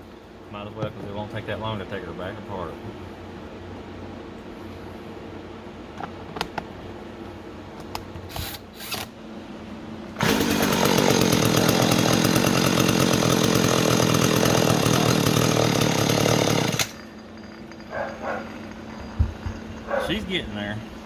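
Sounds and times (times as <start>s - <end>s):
chainsaw engine running: 10.2s - 17.1s
pull starter rasps: 10.2s - 17.1s.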